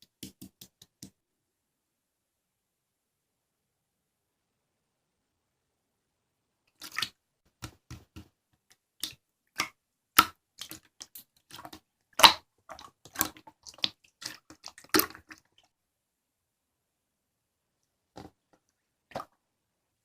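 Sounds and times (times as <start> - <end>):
slime squeezed with wet pops: 9.0 - 15.6.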